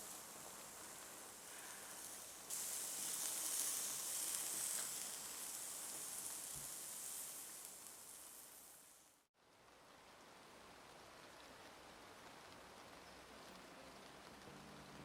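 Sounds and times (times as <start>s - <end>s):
food sizzling in a hot pan: 0.0s - 9.3s.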